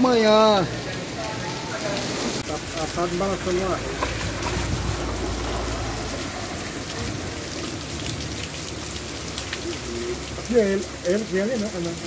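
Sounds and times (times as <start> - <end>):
heavy rain on dirt: 0.0 - 12.0
wind rumble on microphone: 4.1 - 5.6.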